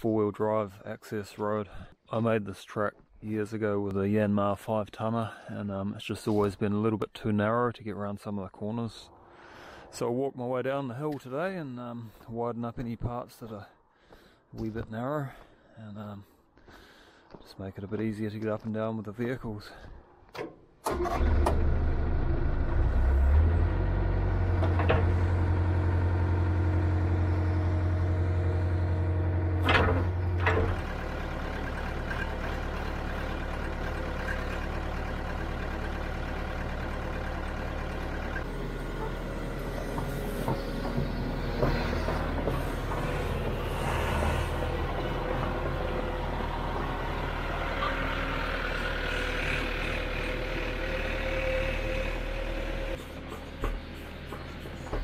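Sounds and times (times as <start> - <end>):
heavy machine engine idling: 21.6 - 55.0.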